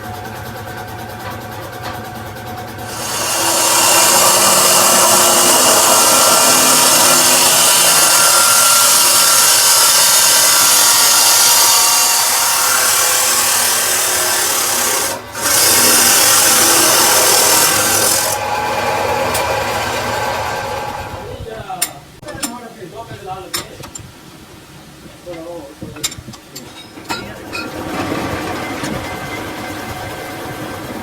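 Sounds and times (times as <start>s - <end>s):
power tool grinding metal: 2.8s - 21.4s.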